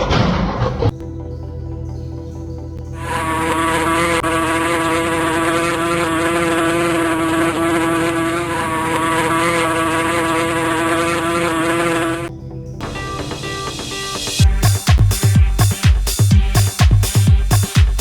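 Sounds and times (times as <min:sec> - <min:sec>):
flying insect buzzing: 0:03.1 - 0:12.3.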